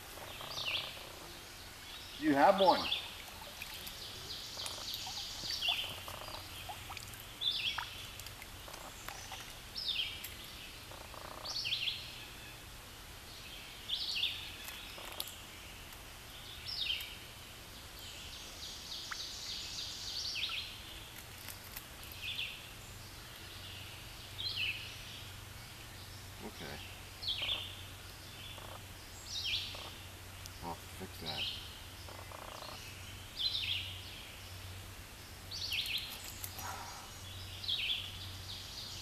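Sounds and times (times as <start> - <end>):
background hiss: 0.0 - 39.0
songbird singing: 0.0 - 39.0.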